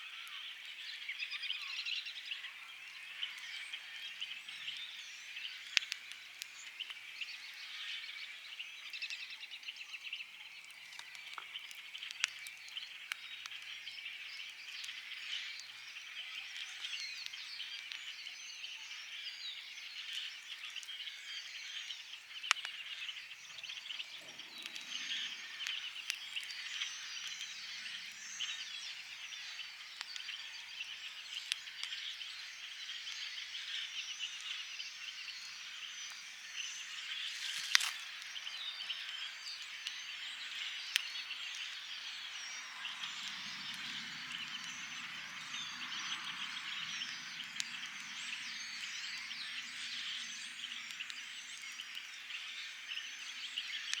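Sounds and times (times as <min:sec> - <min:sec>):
wood fire popping: 0:23.5 - 0:28.2, 0:37.0 - 0:38.4
frogs chorus trilling: 0:34.8 - 0:53.9.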